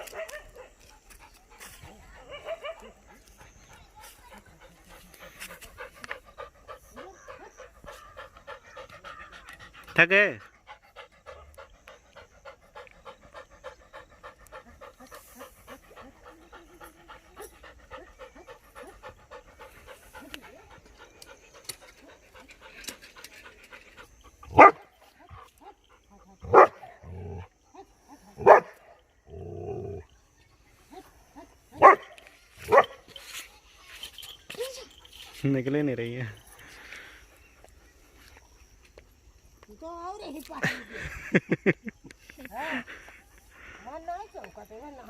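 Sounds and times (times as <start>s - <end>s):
low drawn-out dog sounds: 0.0s - 33.7s
puppy panting: 0.9s - 26.6s
puppy barking: 2.3s - 3.0s.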